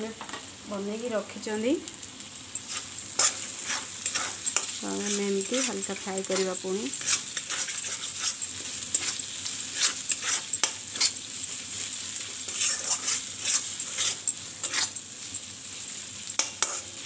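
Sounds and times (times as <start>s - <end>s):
onions sizzling in oil: 0.0s - 17.0s
spatula scraping metal pan: 2.6s - 15.0s.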